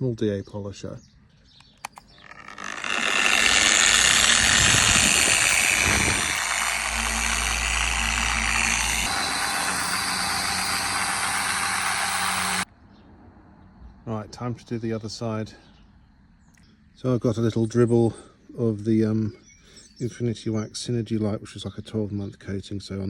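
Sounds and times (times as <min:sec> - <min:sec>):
polisher running: 0:02.2 - 0:12.7.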